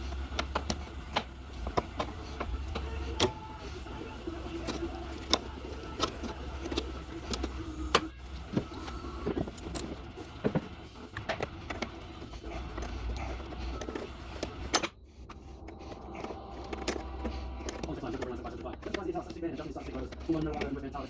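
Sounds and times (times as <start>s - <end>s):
tools and metal parts clinking: 9.3s - 10.0s.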